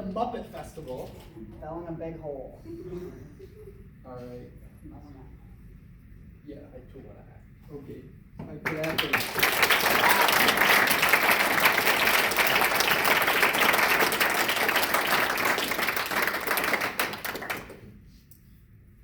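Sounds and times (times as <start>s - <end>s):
audience applauding: 8.6s - 17.9s.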